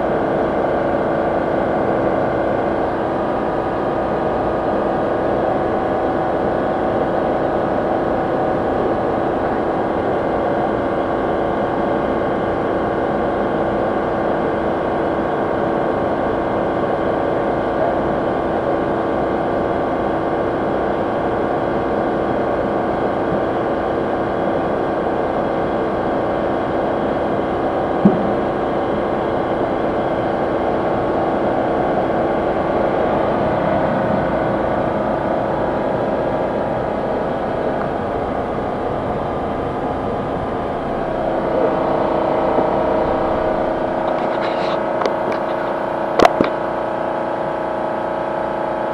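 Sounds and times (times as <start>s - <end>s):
car air conditioning hum: 25.7s - 48.0s.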